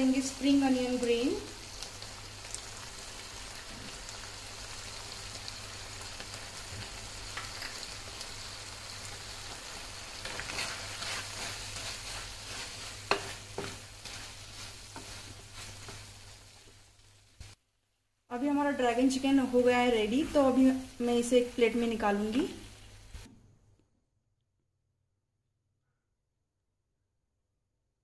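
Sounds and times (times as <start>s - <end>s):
chicken sizzling in pan: 0.0s - 17.6s, 18.5s - 23.3s
wooden spatula scraping pan: 10.1s - 16.9s.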